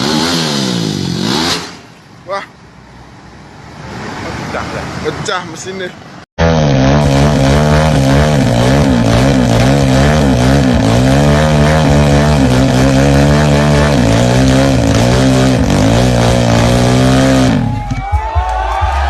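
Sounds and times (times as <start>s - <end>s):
motorcycle engine revving: 0.0s - 2.0s, 6.4s - 17.9s.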